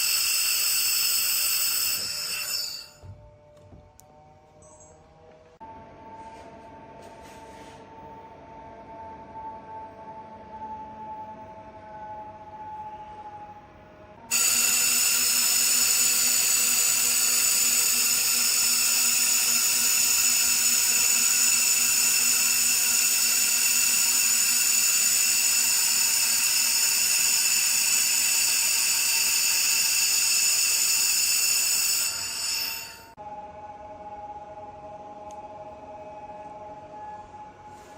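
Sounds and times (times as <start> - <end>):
laser welder high-pitched whine: 0.0 - 3.1, 14.3 - 33.2.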